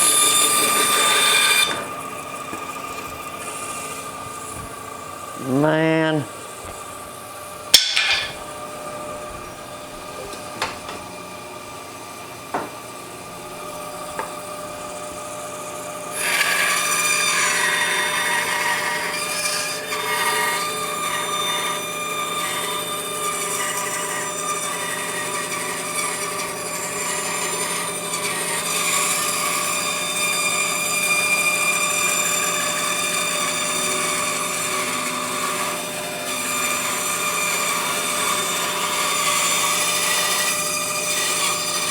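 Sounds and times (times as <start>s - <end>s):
bandsaw blade cutting wood: 0.0s - 6.2s, 7.7s - 8.6s, 15.9s - 41.9s
bandsaw motor hum: 0.0s - 41.9s.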